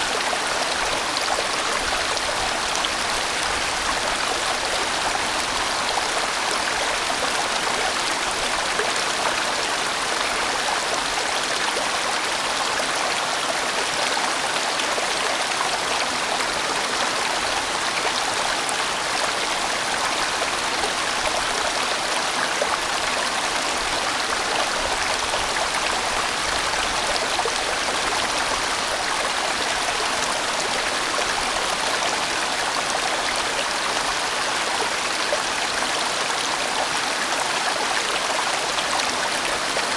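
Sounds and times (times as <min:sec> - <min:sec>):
stream flowing and splashing: 0:00.0 - 0:39.9.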